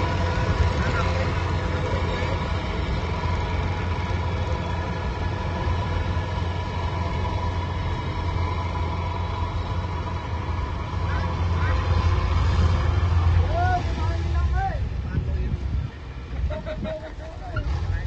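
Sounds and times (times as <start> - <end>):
harvester engine humming: 0.0 - 18.0.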